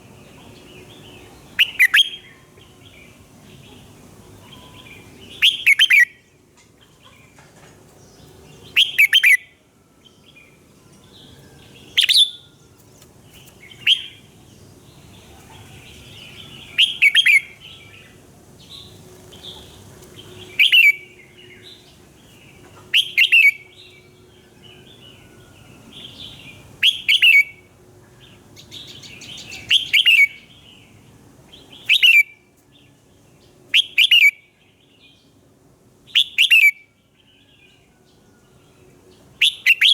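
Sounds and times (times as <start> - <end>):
bird singing warbled phrases: 0.0 - 7.4, 8.0 - 35.4, 36.1 - 37.8, 38.5 - 39.9.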